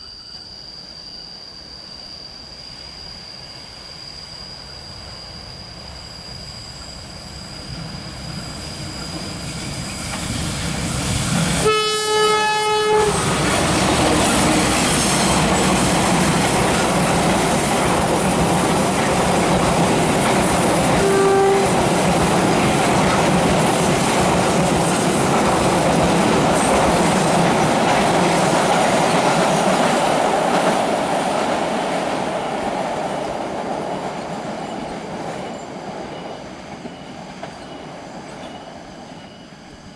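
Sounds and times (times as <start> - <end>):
locomotive horn: 11.6 - 13.3, 20.9 - 21.9
train carriages rumbling and clattering: 13.0 - 39.4.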